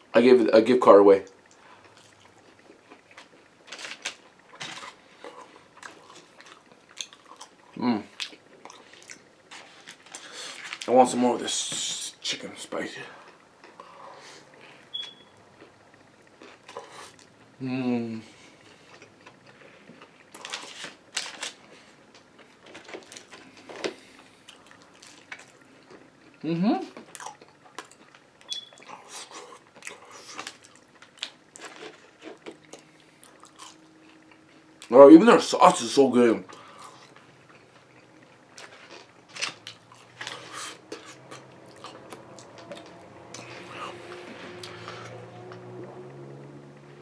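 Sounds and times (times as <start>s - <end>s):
chewing and lip smacking: 1.3s - 10.9s, 22.4s - 34.9s, 36.5s - 45.6s
crackly crunches: 1.5s - 12.0s, 18.7s - 34.9s, 36.5s - 45.1s.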